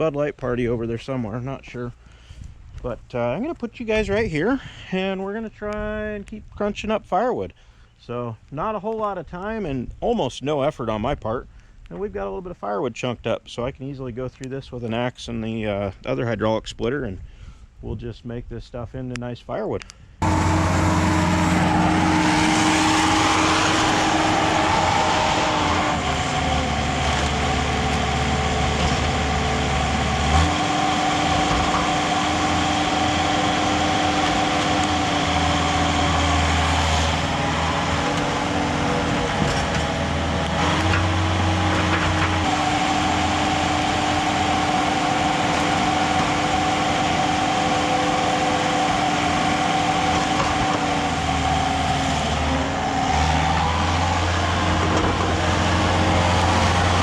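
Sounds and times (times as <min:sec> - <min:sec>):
skid steer engine running: 0:20.2 - 0:57.0.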